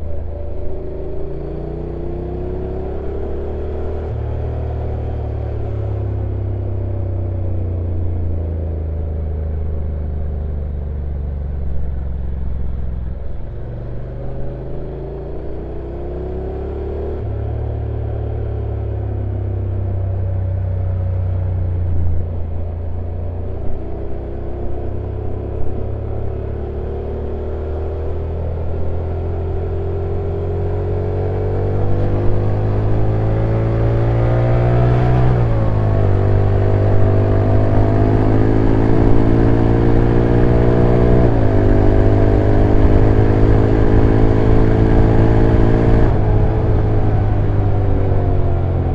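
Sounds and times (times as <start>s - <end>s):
motorcycle engine running: 17.3s - 48.9s.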